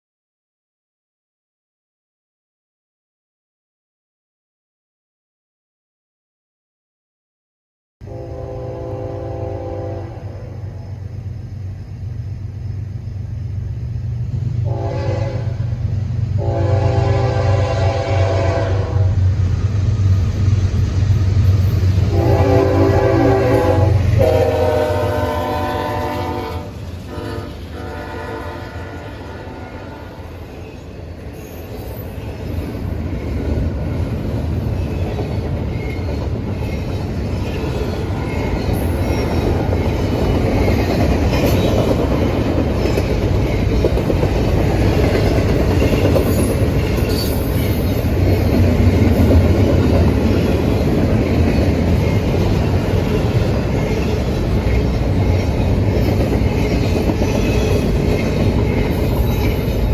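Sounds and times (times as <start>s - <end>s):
locomotive horn: 8.0s - 10.6s, 14.6s - 15.7s, 16.4s - 19.2s, 22.1s - 30.4s
train rumble and wheel clatter: 8.0s - 59.9s.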